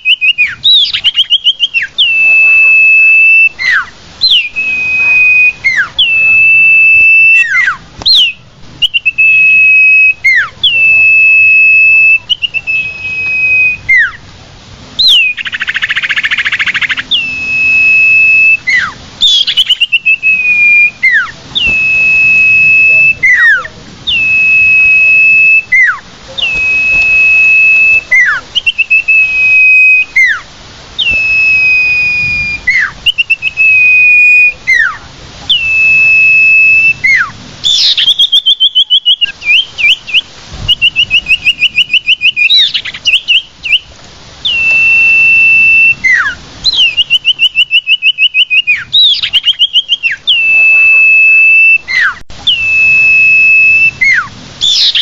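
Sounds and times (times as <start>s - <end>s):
bird whistling long notes: 0.0s - 14.2s, 15.0s - 55.0s
rapid chattering bird trills: 0.0s - 14.2s, 15.0s - 30.4s, 48.6s - 52.6s
harsh buzzy bird call: 0.0s - 14.4s, 15.0s - 55.0s.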